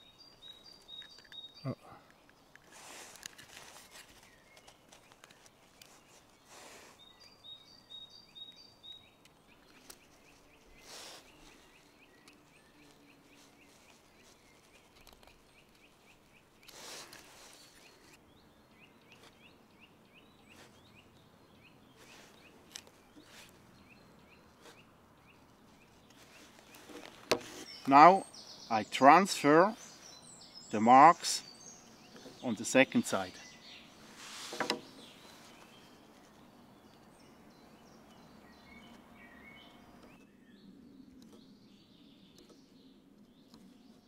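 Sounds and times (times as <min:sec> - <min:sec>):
small birds chirping: 0:00.0 - 0:44.0
soft rustles: 0:02.5 - 0:07.3, 0:09.6 - 0:18.2, 0:21.9 - 0:23.7, 0:24.6 - 0:27.8, 0:33.9 - 0:37.2.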